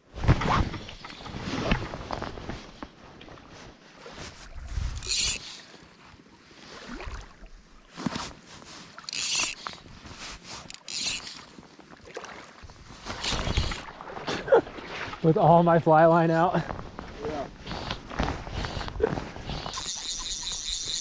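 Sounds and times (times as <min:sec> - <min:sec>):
canoe paddle splashing in water: 0:11.2 - 0:15.3.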